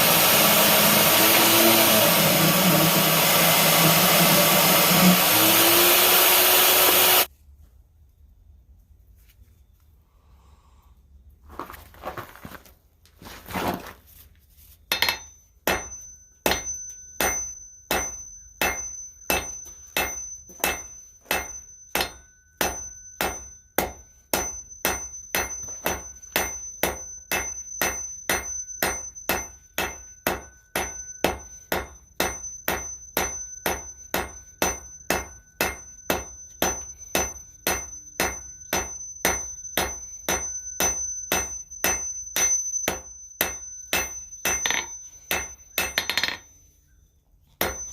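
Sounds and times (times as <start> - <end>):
hammer striking steel on anvil: 14.9 - 46.5, 47.6 - 47.9.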